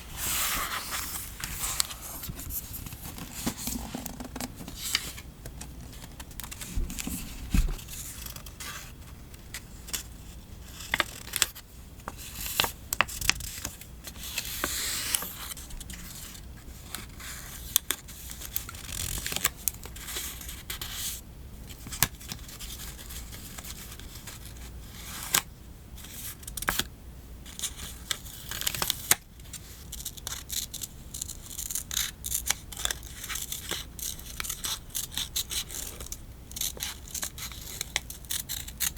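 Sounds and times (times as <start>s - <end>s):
paper rustling and tapping: 0.4s - 8.5s
scissors cutting paper: 29.9s - 38.9s.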